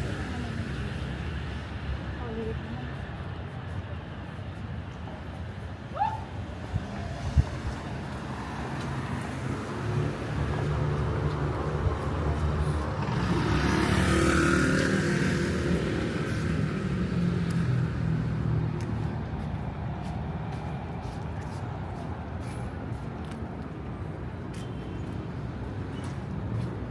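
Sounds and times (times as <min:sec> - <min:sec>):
traffic rumble: 0:00.0 - 0:26.9
vehicle engine passing by: 0:08.4 - 0:18.8.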